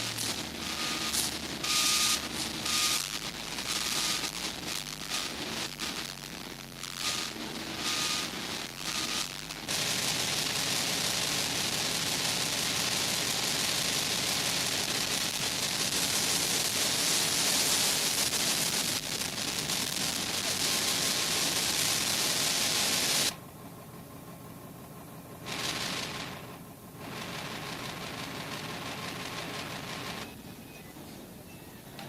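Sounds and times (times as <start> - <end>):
loud steady hiss: 0.0 - 23.4.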